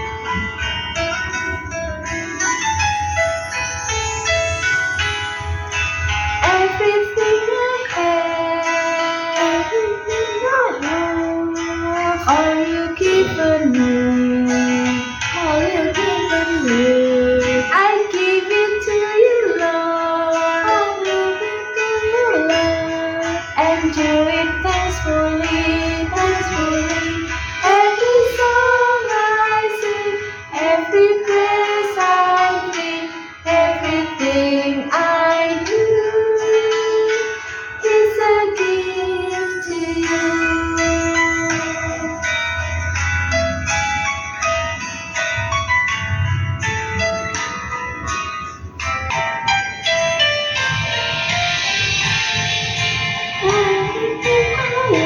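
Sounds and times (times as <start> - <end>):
guitar accompaniment: 0.0 - 55.0
person singing: 6.4 - 42.5, 53.3 - 55.0.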